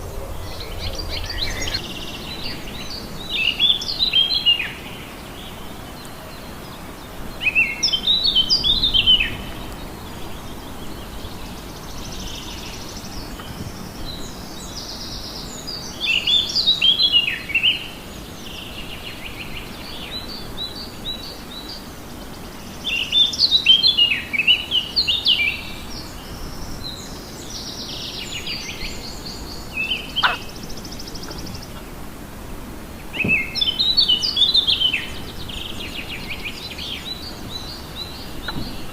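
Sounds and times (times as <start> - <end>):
buzzy bird calls: 0.0 - 3.8, 29.8 - 32.1
songbird warbling: 0.0 - 4.6, 29.7 - 32.0
outdoor background noise: 0.0 - 38.9.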